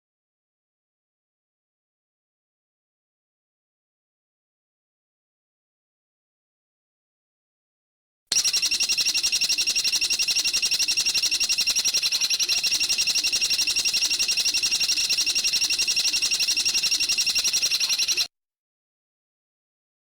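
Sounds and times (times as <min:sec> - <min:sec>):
bird rattling trill: 0:08.3 - 0:18.3.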